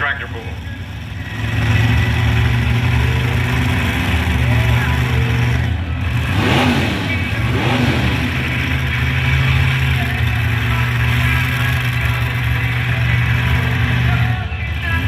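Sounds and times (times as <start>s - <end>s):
truck engine running at high revs: 0.0s - 15.0s.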